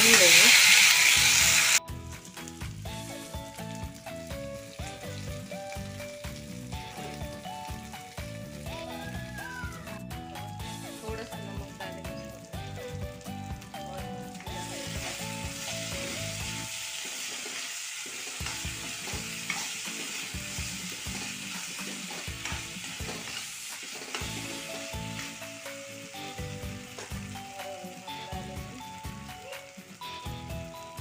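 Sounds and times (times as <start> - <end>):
soft background music: 0.0 - 31.0
vegetables sizzling in a wok: 0.0 - 31.0
spatula stirring: 17.0 - 25.3.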